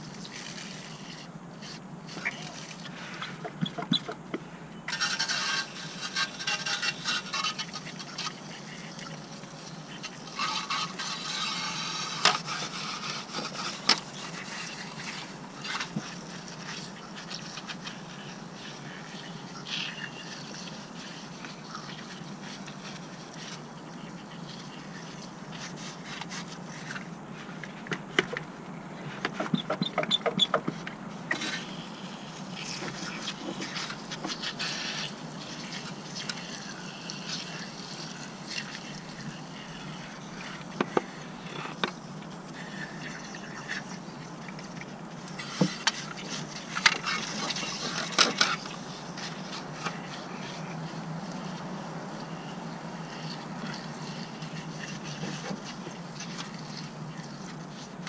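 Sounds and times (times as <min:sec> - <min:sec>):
metallic clicks and scrapes: 0:04.9 - 0:08.4.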